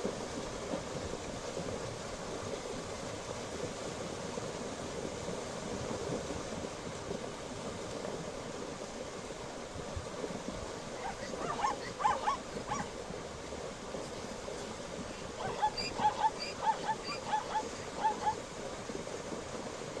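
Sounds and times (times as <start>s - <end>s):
zebra yipping barks: 11.0s - 12.9s, 15.4s - 18.4s.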